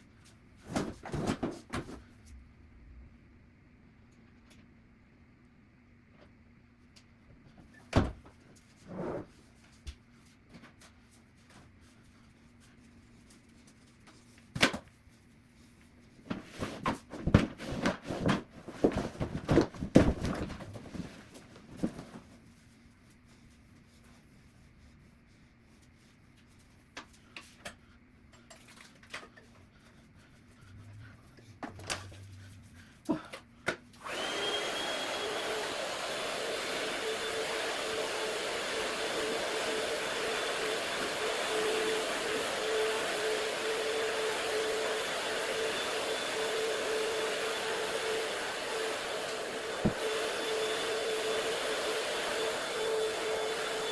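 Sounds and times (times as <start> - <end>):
objects clattering and rustling: 0.6 - 2.1, 16.2 - 22.4
vacuum cleaner running: 30.8 - 53.9.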